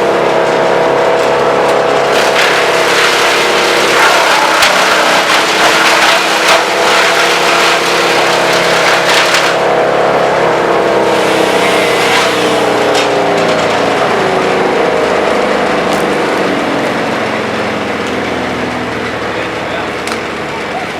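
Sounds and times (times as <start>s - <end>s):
branches crackling in chipper: 0.0s - 20.9s
brush chipper engine running: 0.0s - 20.9s
sharp wood snaps: 2.1s - 9.6s, 15.9s - 16.2s, 20.0s - 20.3s.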